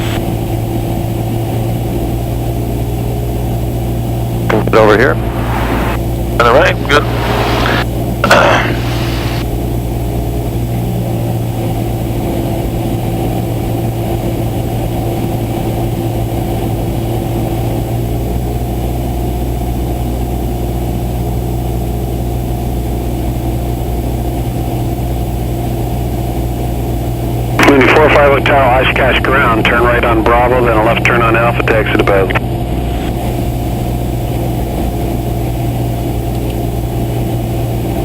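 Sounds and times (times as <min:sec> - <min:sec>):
light aircraft cabin drone: 0:00.0 - 0:19.0, 0:26.4 - 0:38.0.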